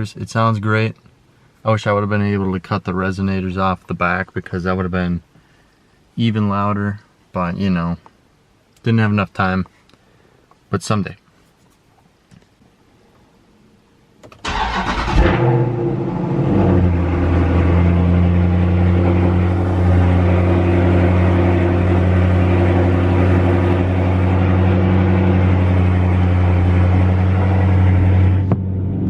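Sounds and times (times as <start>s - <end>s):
car engine starting and idling: 14.3s - 29.0s.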